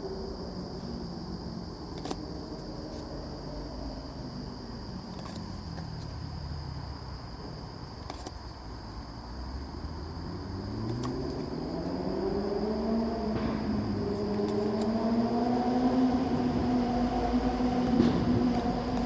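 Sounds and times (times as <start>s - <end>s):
low engine rumble rising: 11.4s - 19.0s.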